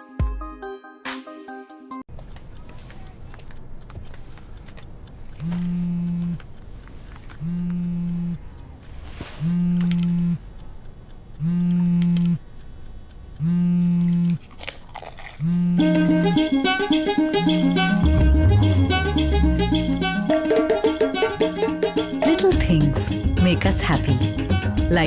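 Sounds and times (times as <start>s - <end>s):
low electric buzz: 4.9s - 6.5s, 7.3s - 8.8s, 9.4s - 14.5s, 15.3s - 20.2s.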